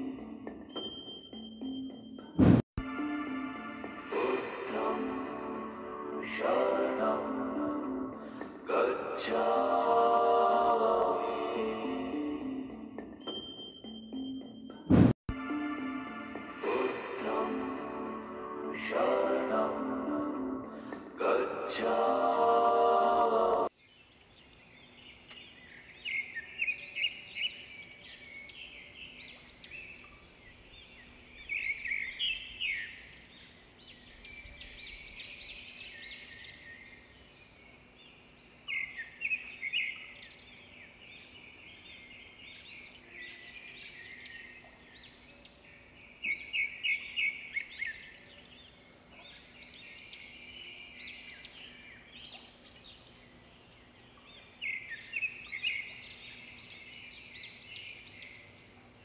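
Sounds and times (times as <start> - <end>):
birds chirping: 23.6 - 59.0.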